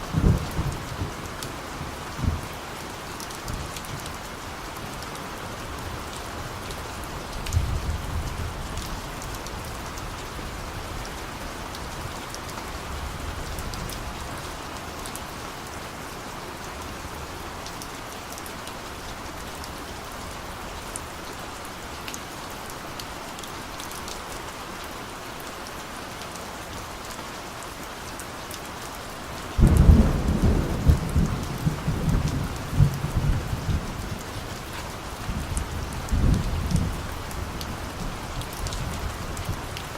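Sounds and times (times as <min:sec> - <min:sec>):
steady rain: 0:00.0 - 0:39.9
thunder rumbling: 0:29.6 - 0:39.5.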